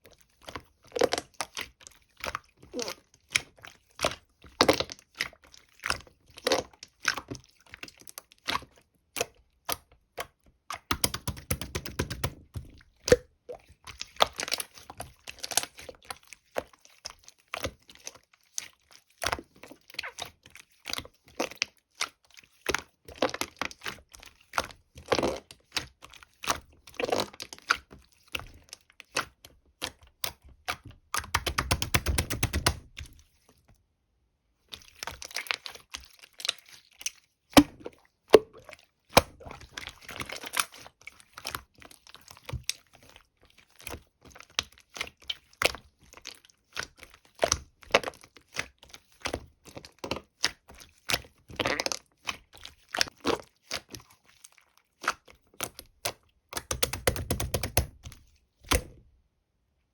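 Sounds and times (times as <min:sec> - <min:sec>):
sharp clicks and taps: 0:31.2 - 0:32.8, 0:56.6 - 0:57.9.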